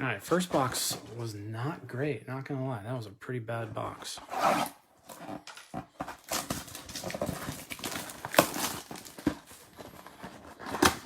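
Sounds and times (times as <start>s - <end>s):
cards and packaging rustling: 0.2s - 1.4s, 5.0s - 11.0s.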